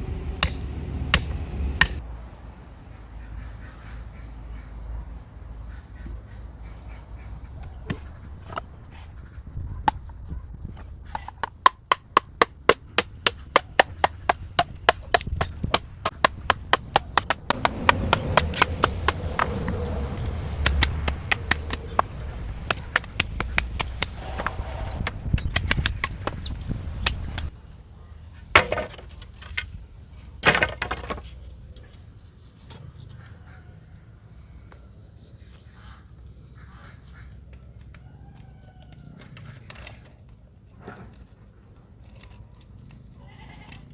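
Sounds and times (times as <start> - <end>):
wood being chopped: 0.4 - 2.0, 9.8 - 10.1, 11.1 - 27.5, 28.6 - 29.1, 30.4 - 31.2.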